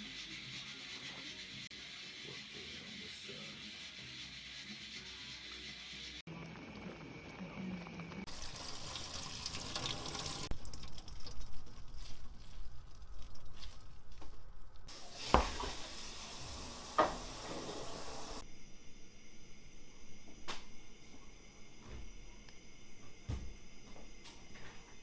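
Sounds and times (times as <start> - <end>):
cooking hiss: 0.0 - 25.0
light kitchen clatter: 14.9 - 18.4.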